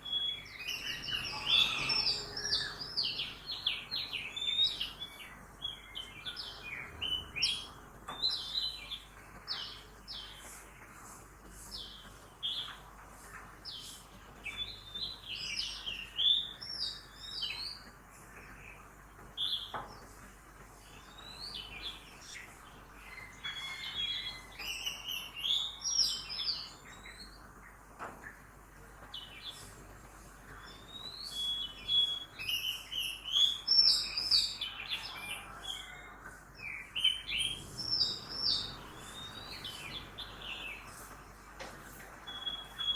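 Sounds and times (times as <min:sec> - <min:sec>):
birds chirping and singing: 0:00.0 - 0:10.6, 0:20.9 - 0:27.4, 0:30.5 - 0:41.2, 0:42.2 - 0:42.9.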